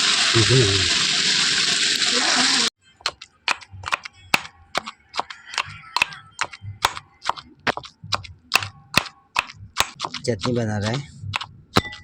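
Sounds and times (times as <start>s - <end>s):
kitchen utensil knocking: 3.1s - 12.0s.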